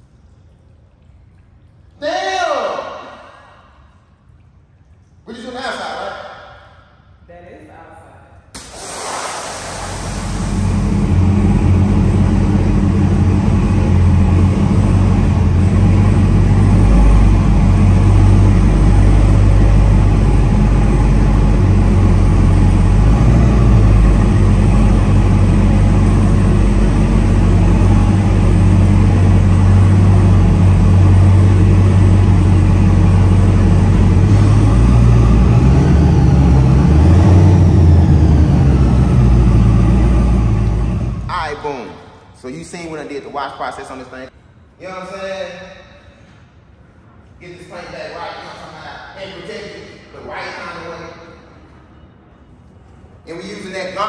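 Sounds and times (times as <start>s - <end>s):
deep engine exhaust rumble: 8.6s - 44.0s.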